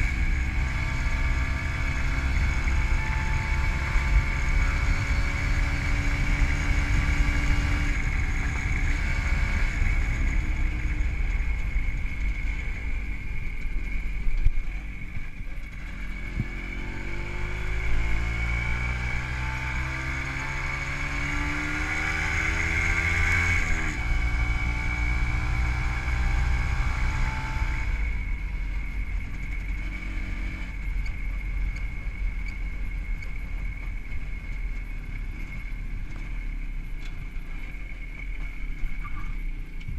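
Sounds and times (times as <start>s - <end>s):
two-stroke engine revving: 15.7s - 28.1s.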